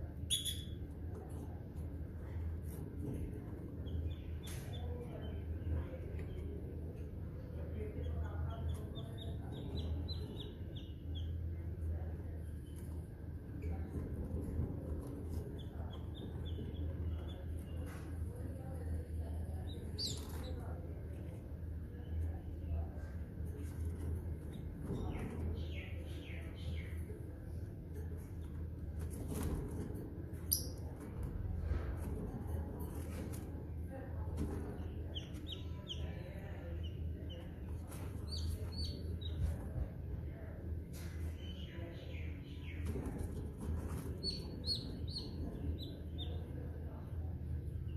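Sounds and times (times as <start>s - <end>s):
steady low hum: 0.0s - 47.9s
bird high chirps: 0.3s - 0.8s.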